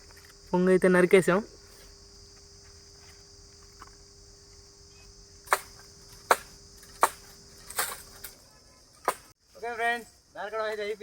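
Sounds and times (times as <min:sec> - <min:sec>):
crickets chirping: 0:00.0 - 0:11.0
blade chopping bamboo: 0:05.4 - 0:08.3, 0:09.0 - 0:09.3.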